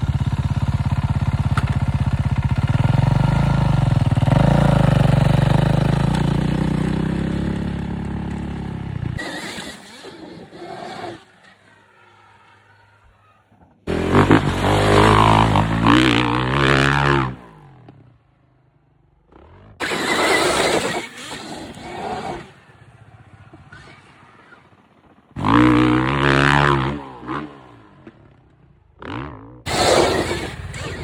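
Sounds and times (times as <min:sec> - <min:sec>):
dirt bike engines revving: 0:00.0 - 0:18.2, 0:19.2 - 0:31.0.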